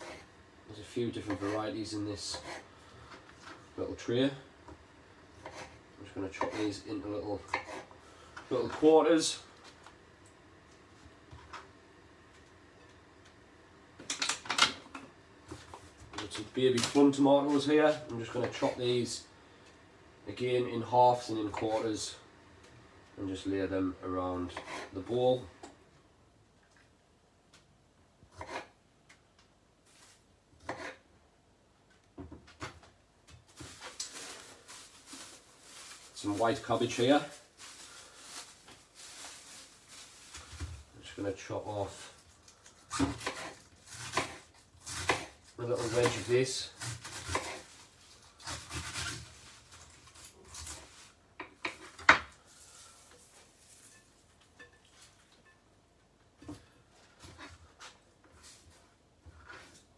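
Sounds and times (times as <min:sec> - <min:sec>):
knife rasping through cabbage: 0:00.0 - 0:00.3, 0:01.3 - 0:02.7, 0:05.4 - 0:06.8, 0:07.5 - 0:07.9, 0:24.4 - 0:25.0, 0:28.3 - 0:28.8, 0:30.6 - 0:31.0, 0:42.8 - 0:51.2
rustling scraping noise: 0:33.5 - 0:51.2, 0:51.8 - 0:55.3.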